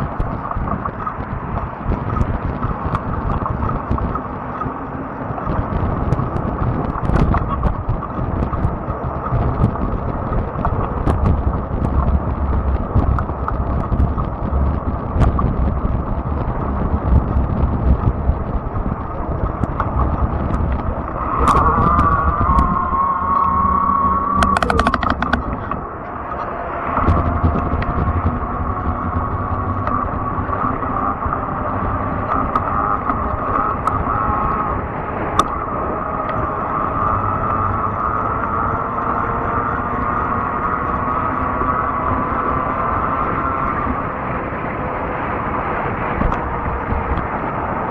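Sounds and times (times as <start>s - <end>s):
electric bike hum: 0.0s - 47.9s
road and wind rumble: 0.0s - 47.9s
steady high whine: 0.0s - 47.9s
sharp clicks: 24.3s - 25.8s, 35.4s - 35.6s
sharp ticks: 24.3s - 25.8s.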